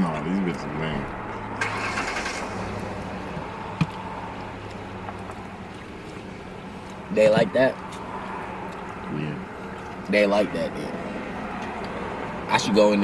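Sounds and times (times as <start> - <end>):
vehicle engine idling: 0.2 - 10.0.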